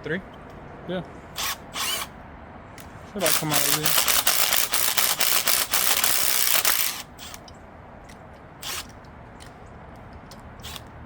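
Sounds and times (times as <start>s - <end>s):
air tool rattling on bolts: 2.8s - 7.5s, 8.6s - 9.0s, 10.6s - 10.9s.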